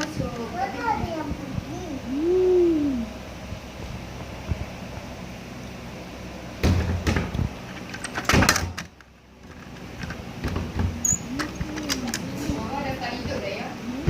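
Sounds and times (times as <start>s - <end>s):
knocks and rubbing clatter: 6.6s - 13.5s.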